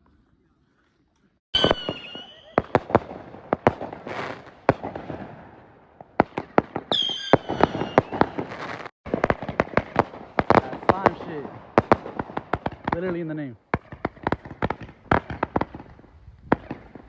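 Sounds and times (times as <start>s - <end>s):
firework whistle: 1.5s - 3.0s, 6.9s - 8.5s
firework bangs and crackling: 1.6s - 17.0s.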